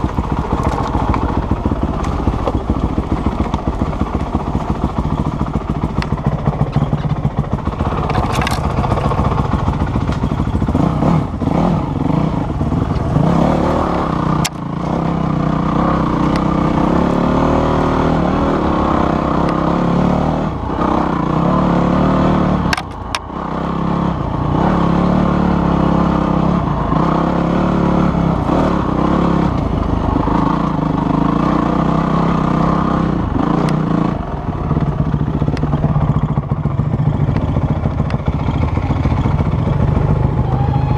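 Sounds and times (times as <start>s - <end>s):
clatter from rough ground: 0.0s - 11.3s, 22.6s - 23.3s
off-road vehicle engine revving: 0.0s - 40.9s.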